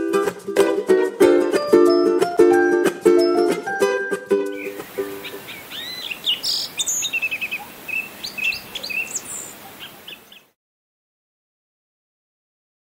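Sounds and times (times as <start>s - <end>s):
plucked ukulele tune: 0.0s - 5.5s
songbirds chirping and singing: 4.5s - 10.5s.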